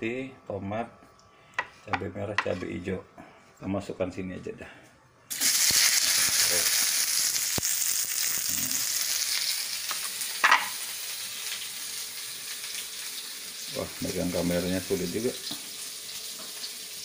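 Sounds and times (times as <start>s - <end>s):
vegetables sizzling in oil: 5.3s - 17.0s.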